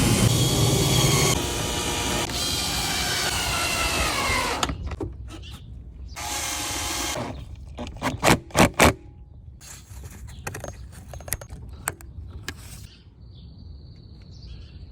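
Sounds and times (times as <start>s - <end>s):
cordless power drill running: 0.0s - 4.8s, 6.2s - 7.5s.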